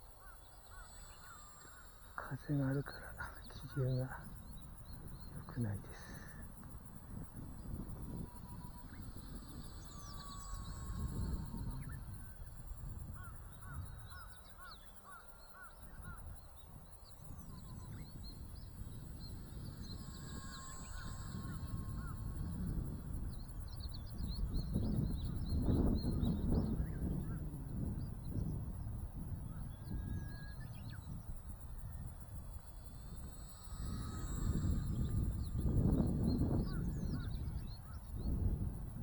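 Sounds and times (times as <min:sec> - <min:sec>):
model plane motor whine: 0:00.0 - 0:02.2, 0:06.0 - 0:14.8, 0:15.6 - 0:39.0
bird chirps: 0:00.0 - 0:27.4
wind buffeting microphone: 0:00.0 - 0:39.0.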